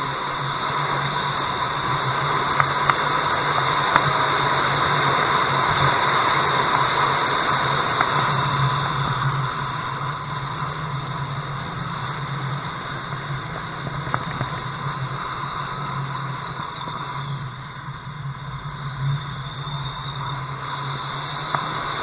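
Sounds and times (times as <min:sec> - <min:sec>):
wind rushing over camera: 0:00.0 - 0:22.0.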